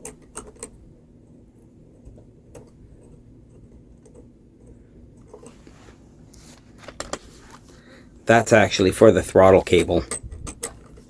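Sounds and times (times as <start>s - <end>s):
small parts clicking: 0.0s - 0.8s, 9.7s - 11.0s
low steady hum: 0.0s - 11.0s.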